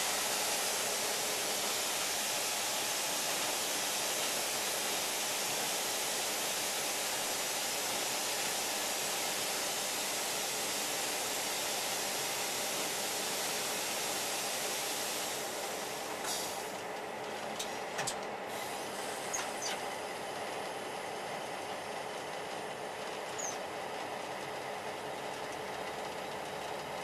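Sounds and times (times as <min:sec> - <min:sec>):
train rushing hiss: 0:00.0 - 0:16.8, 0:18.5 - 0:19.7
faint high squeals: 0:23.4 - 0:23.6.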